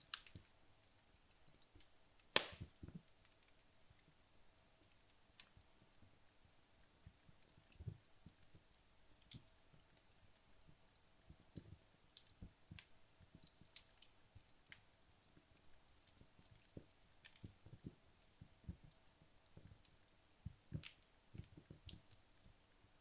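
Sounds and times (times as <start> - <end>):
wood logs crackling in fireplace: 0.0 - 23.0.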